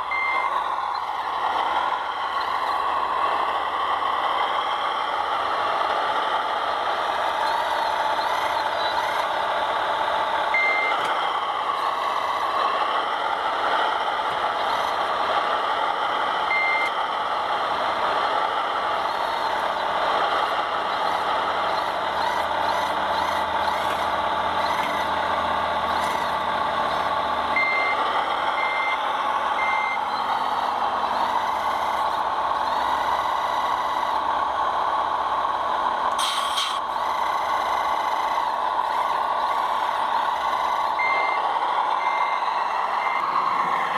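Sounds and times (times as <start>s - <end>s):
reversing beeps: 0.1s - 1.1s, 8.2s - 9.2s, 10.5s - 11.1s, 16.5s - 17.0s, 27.6s - 28.0s, 28.6s - 29.0s, 29.6s - 30.6s, 40.6s - 41.4s, 42.0s - 43.4s
short hiss: 36.2s - 36.8s.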